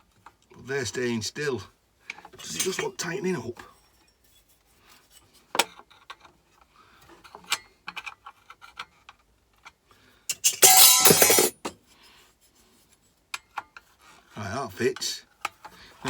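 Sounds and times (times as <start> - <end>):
loud clatter of metal on metal: 10.3 - 11.6
metal hand tools clinking: 10.3 - 11.6.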